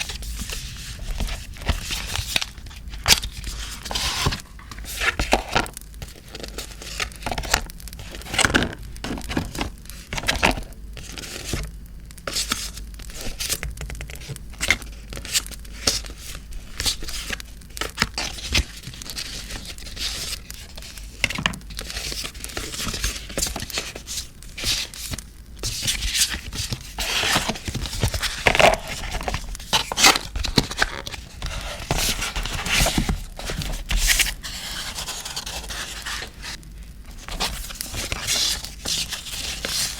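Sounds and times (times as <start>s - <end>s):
paper tearing and crinkling: 25.8s - 39.9s.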